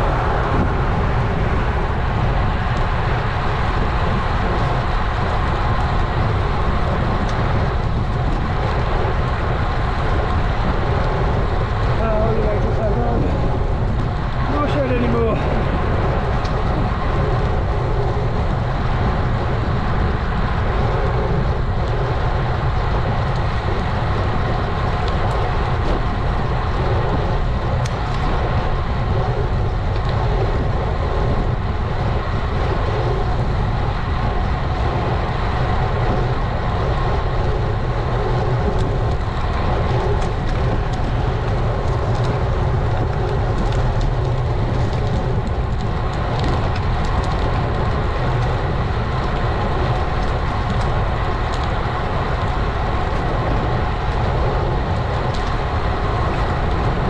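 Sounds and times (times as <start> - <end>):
bicycle tyre road noise: 0.0 - 57.0
wind rumble: 0.0 - 57.0.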